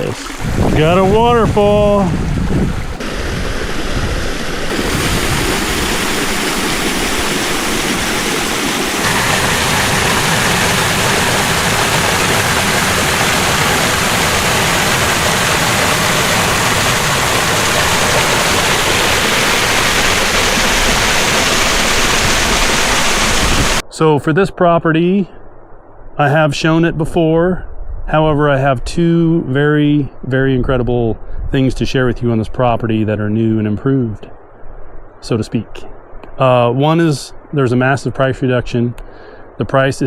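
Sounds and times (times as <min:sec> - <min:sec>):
waterfall rushing: 0:00.0 - 0:23.8.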